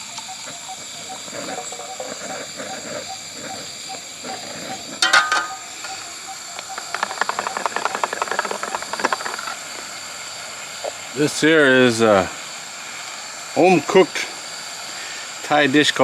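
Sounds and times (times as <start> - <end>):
water hissing near the boil: 0.0 - 16.0
loud clatter: 5.0 - 5.7
fast run of clicks: 5.0 - 10.0.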